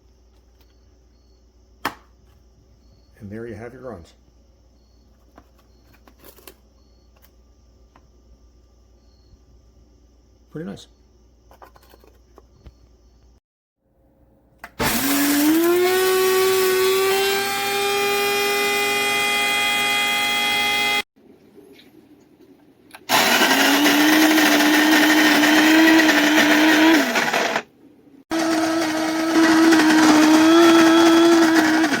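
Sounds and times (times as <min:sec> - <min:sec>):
coffee grinder grinding beans: 0:14.8 - 0:21.0, 0:23.1 - 0:27.7, 0:28.3 - 0:32.0.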